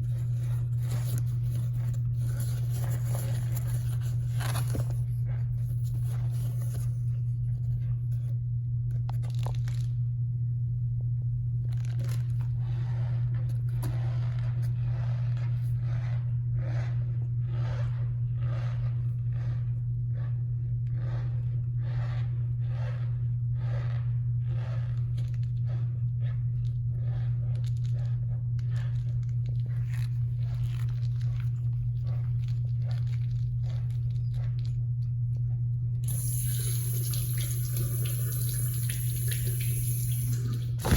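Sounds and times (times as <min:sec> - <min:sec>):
steady low hum: 0:00.0 - 0:40.9
running water hiss: 0:36.1 - 0:40.9.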